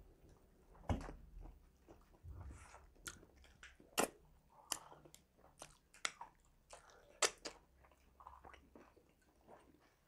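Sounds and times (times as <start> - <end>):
wet chewing smacks: 3.0 - 10.0.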